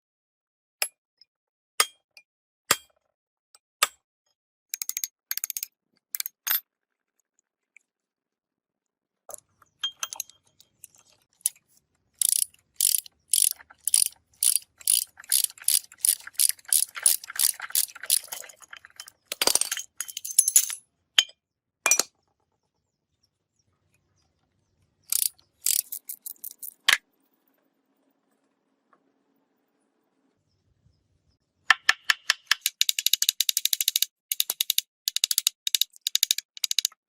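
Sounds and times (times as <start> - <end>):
ratchet wrench clicking: 12.2 - 18.2, 25.1 - 26.7, 32.6 - 37.0.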